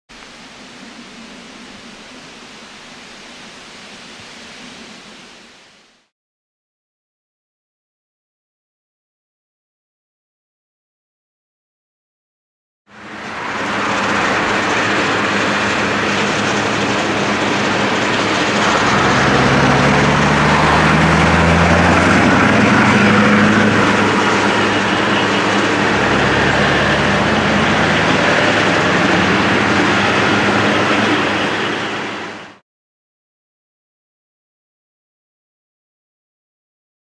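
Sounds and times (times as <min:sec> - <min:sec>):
diesel truck engine deep exhaust: 0:13.7 - 0:31.5.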